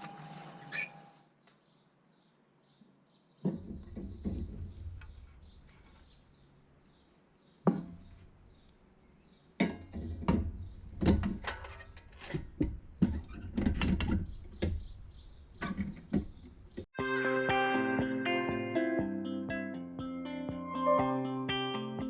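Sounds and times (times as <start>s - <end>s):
hard objects knocking and clattering: 9.6s - 14.9s.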